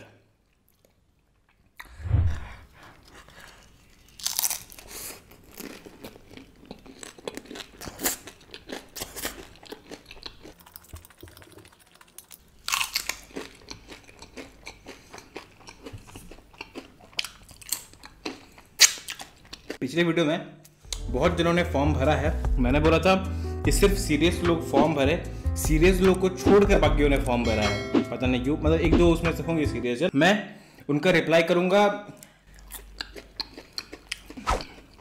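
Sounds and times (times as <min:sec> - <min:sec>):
crunching and chewing chips: 0:02.8 - 0:19.8, 0:32.2 - 0:35.0.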